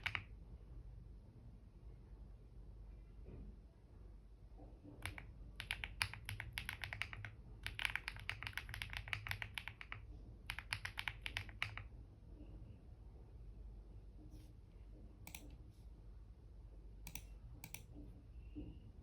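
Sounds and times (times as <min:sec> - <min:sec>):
computer keyboard typing: 0:00.0 - 0:00.3, 0:05.0 - 0:11.9, 0:17.1 - 0:17.9.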